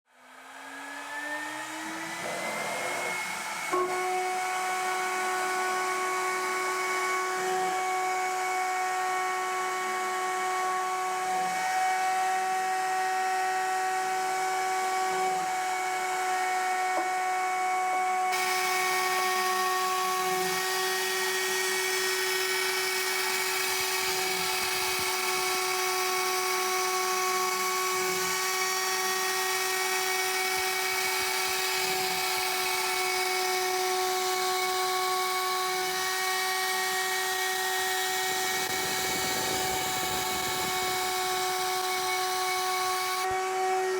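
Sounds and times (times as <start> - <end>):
mill spindle whining: 30.4 - 43.3.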